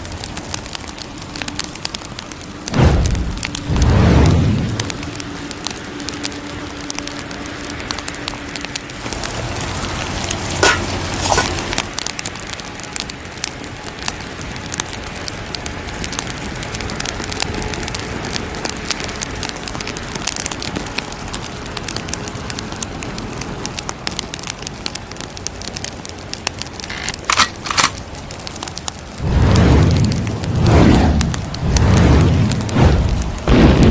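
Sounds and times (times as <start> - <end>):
loud fire pops: 0.0 - 33.9
wood fire crackling: 0.0 - 33.9.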